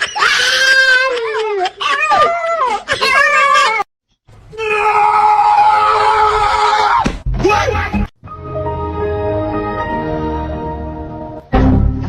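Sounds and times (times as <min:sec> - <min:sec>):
dog howling and whining: 0:00.0 - 0:03.9.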